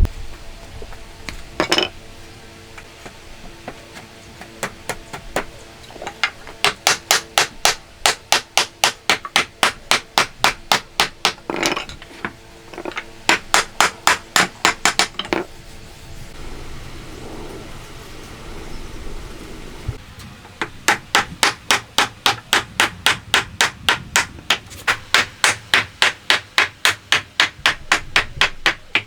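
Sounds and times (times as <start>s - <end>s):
hammer striking wood: 6.6s - 11.8s, 12.8s - 15.4s, 20.6s - 29.0s.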